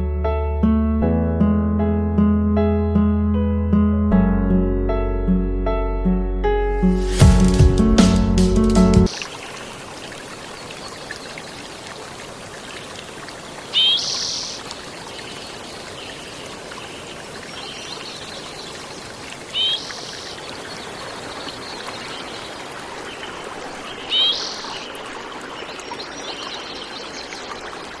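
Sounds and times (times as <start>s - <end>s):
running water rushing: 9.0s - 28.0s
bird calling: 13.6s - 18.8s, 19.5s - 27.6s.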